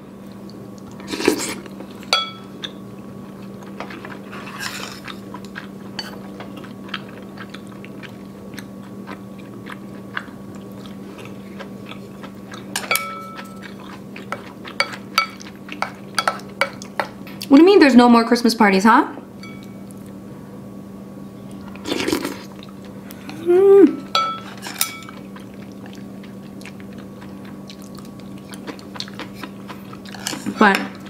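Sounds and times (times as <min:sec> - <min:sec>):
steady low hum: 0:00.0 - 0:31.0
chewing and biting: 0:00.3 - 0:17.2, 0:24.6 - 0:31.0
utensils clinking against bowl: 0:02.0 - 0:02.5, 0:06.0 - 0:06.3, 0:12.7 - 0:17.4, 0:19.4 - 0:19.9, 0:24.1 - 0:25.3, 0:30.0 - 0:31.0.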